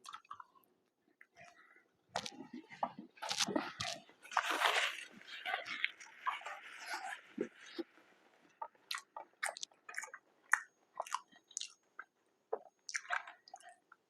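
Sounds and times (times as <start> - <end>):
person chewing food: 0.0 - 14.0
mouth clicks and smacks: 2.1 - 4.8, 8.6 - 13.9.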